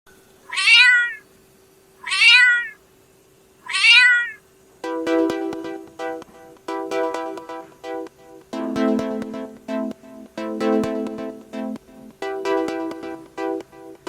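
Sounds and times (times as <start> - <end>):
cat meowing: 0.5 - 1.2, 2.0 - 2.8, 3.6 - 4.4
keyboard music: 4.8 - 14.0.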